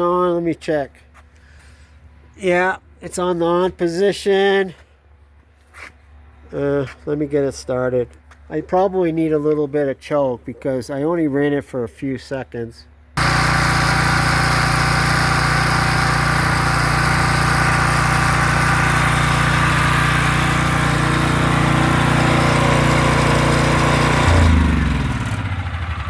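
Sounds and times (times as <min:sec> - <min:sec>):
engine winding down: 0:13.2 - 0:26.0
generator engine running: 0:13.2 - 0:26.0.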